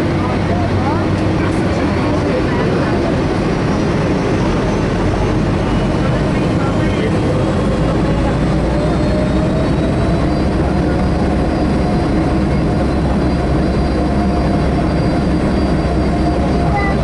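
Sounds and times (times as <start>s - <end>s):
jet engines and airflow in cabin: 0.0s - 17.0s
faint even whine: 8.1s - 17.0s.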